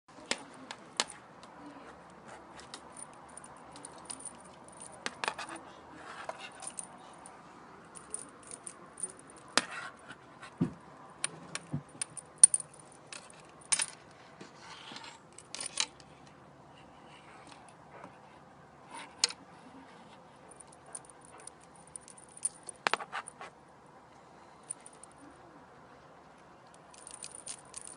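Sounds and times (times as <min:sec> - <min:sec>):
light metallic jingling: 0:02.8 - 0:05.6, 0:06.3 - 0:09.6, 0:11.2 - 0:14.0, 0:20.5 - 0:23.4, 0:26.8 - 0:27.9.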